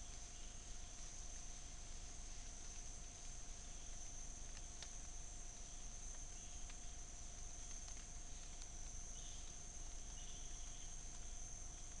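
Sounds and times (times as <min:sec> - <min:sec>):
low insect drone: 0:00.0 - 0:12.0
faint clicks: 0:04.4 - 0:05.2, 0:06.1 - 0:12.0
high-pitched insect trill: 0:08.2 - 0:12.0.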